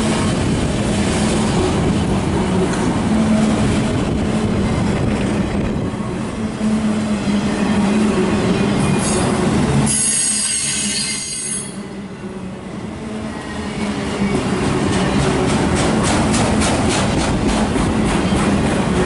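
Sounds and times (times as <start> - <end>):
freight cars rumbling on rails: 0.0 - 10.8, 11.7 - 19.0
high-pitched wheel squeal: 9.9 - 12.0.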